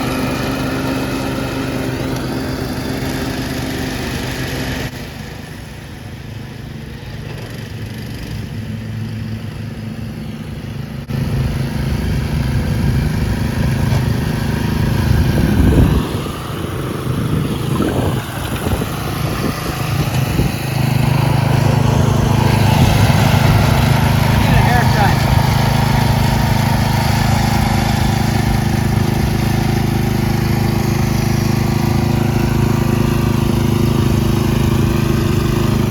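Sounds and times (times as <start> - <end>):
lawn tractor engine revving: 0.0 - 9.6, 11.0 - 35.9.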